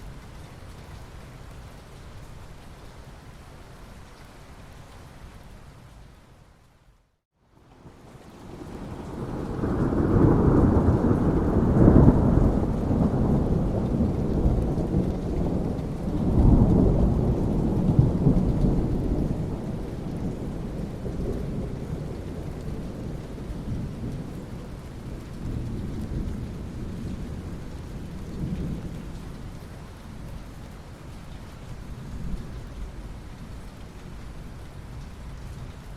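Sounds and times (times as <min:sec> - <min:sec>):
steady rain: 0:00.0 - 0:35.9
rolling thunder: 0:08.5 - 0:29.3.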